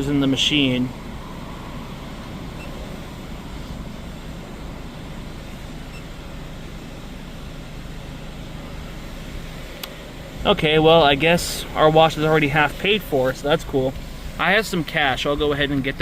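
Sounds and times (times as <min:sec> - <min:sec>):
idling car rumble with hiss: 0:00.0 - 0:16.0.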